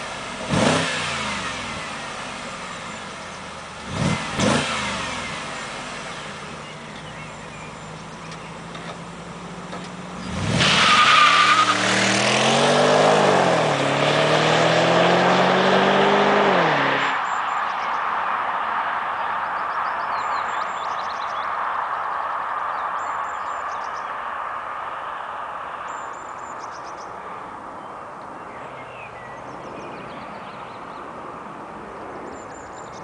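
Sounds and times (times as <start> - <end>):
car engine revving and accelerating: 0.0 - 7.9, 10.1 - 20.8.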